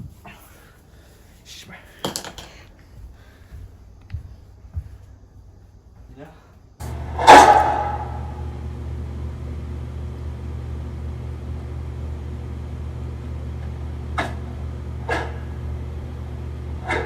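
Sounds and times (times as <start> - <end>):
low hum: 6.7 - 17.0.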